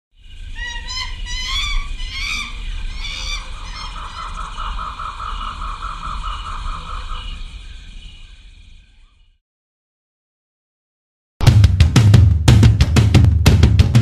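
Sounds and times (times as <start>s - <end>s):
rapid pulsing bird call: 0.2s - 9.3s
warbling bird calls: 0.2s - 9.4s.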